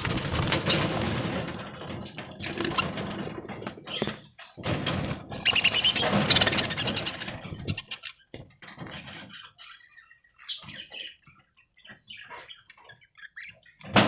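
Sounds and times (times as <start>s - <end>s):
budgerigars chirping and chattering: 5.4s - 14.0s.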